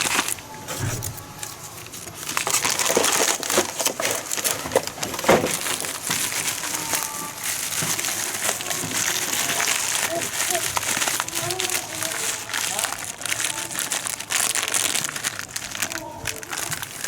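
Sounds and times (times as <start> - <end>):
clicks and knocks of handling: 0.0 - 11.7
rustling and crinkling: 0.0 - 17.0.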